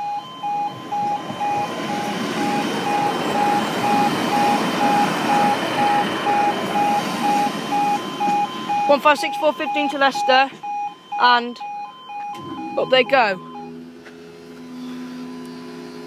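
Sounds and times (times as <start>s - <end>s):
train rolling rumble: 0.0s - 11.3s
level crossing alarm beeping: 0.0s - 14.0s.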